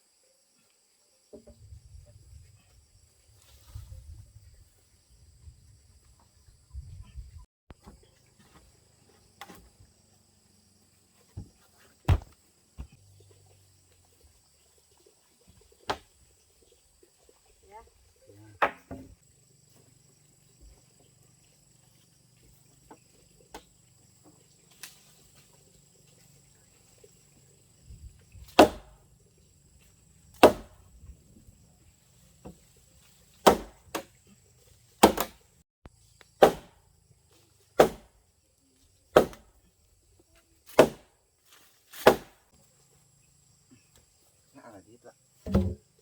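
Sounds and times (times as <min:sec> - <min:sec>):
tool striking wood: 0:12.1 - 0:12.9, 0:28.6 - 0:29.0, 0:30.4 - 0:30.8, 0:35.0 - 0:35.4, 0:36.4 - 0:36.8, 0:37.8 - 0:38.1, 0:39.2 - 0:39.4, 0:40.8 - 0:41.0, 0:45.5 - 0:45.8.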